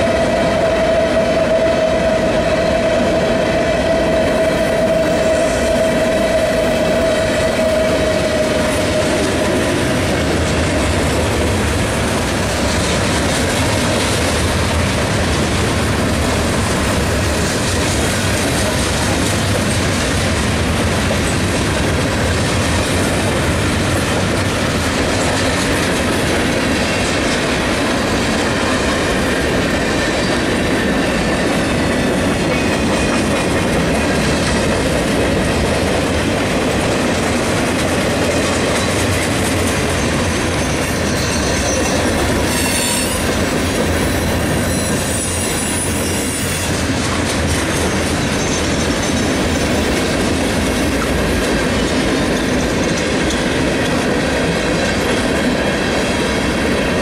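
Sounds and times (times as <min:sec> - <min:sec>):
train wheels rumbling on rails: 0:00.0 - 0:57.0
high-pitched wheel squeals: 0:40.6 - 0:43.3, 0:44.1 - 0:46.8.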